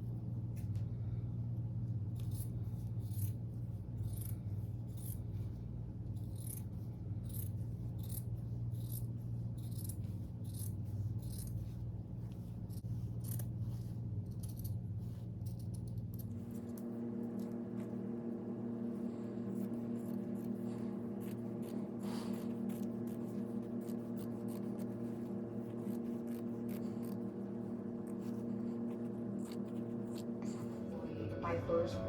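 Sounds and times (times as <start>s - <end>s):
steady low hum: 0.0s - 32.0s
scissors snipping fabric: 4.0s - 4.4s, 6.2s - 11.6s, 12.3s - 13.6s, 19.5s - 30.4s.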